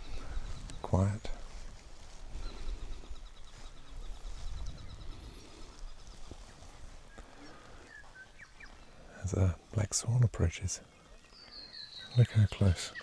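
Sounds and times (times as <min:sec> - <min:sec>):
low wind rumble on microphone: 0:00.0 - 0:07.2
bird high ticking calls: 0:02.4 - 0:13.0.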